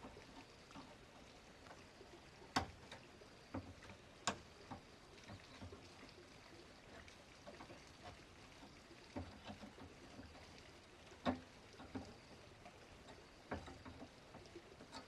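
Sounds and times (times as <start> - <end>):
faint knocks and taps: 2.5 - 6.0, 7.0 - 15.0.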